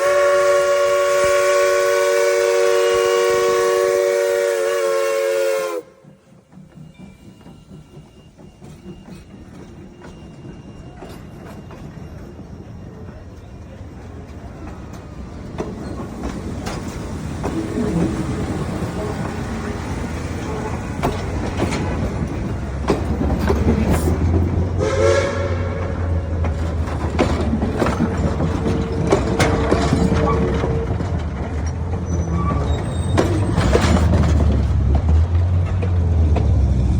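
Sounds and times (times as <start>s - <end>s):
train horn: 0.0s - 6.2s, 24.8s - 26.3s
train cars clicking and clanking: 0.0s - 36.9s
train engine rumble: 0.0s - 36.9s.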